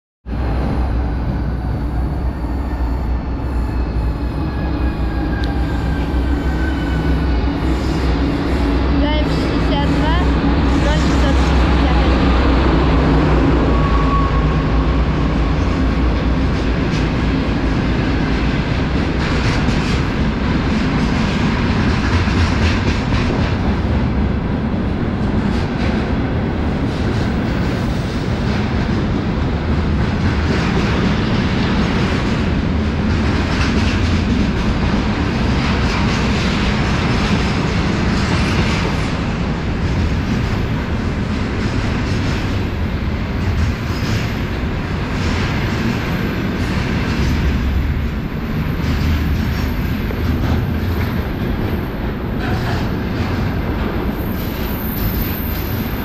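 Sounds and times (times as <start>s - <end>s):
diesel locomotive droning past: 0.3s - 43.6s
train wheels clacking over rail joints: 16.2s - 23.7s.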